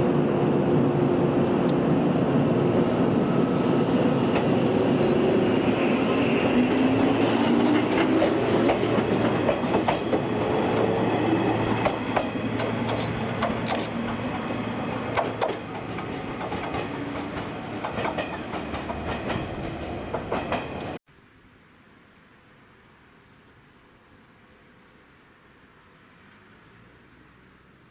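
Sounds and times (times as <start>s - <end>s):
faint train whine: 0.0s - 21.0s
train wheels clicking over rail joints: 6.6s - 21.0s.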